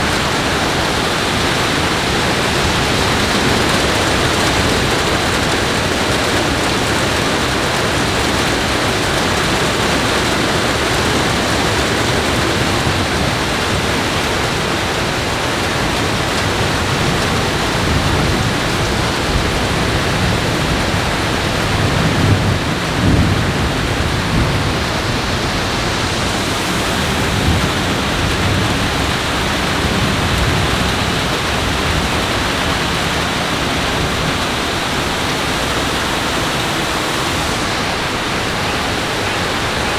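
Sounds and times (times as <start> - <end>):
heavy rain falling: 0.0 - 39.9
low rumble of thunder: 16.8 - 35.4.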